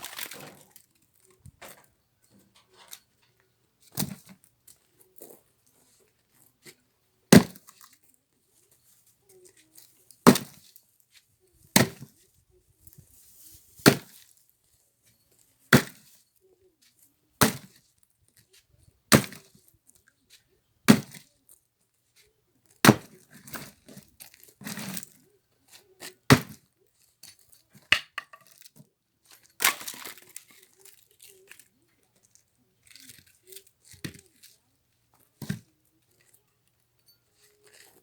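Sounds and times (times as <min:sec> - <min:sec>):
axe chopping firewood: 0:07.3 - 0:07.7, 0:10.2 - 0:10.6, 0:11.8 - 0:12.1, 0:13.8 - 0:14.2, 0:15.7 - 0:16.1, 0:17.4 - 0:17.8, 0:19.1 - 0:19.5, 0:20.9 - 0:21.2, 0:22.8 - 0:23.7, 0:26.3 - 0:26.6, 0:27.9 - 0:28.6, 0:29.6 - 0:30.2, 0:35.4 - 0:35.6
scraping and rustling: 0:12.1 - 0:16.2.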